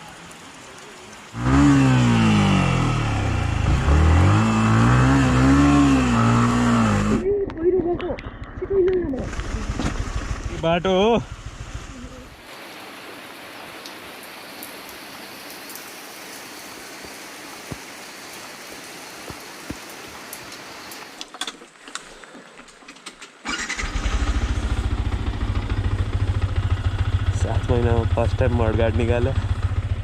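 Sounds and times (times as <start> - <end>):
water drips: 0.0 - 1.4, 12.4 - 23.0
rain hissing: 0.0 - 7.2, 9.1 - 22.6
motorcycle engine starting and idling: 7.2 - 12.4, 23.0 - 30.0.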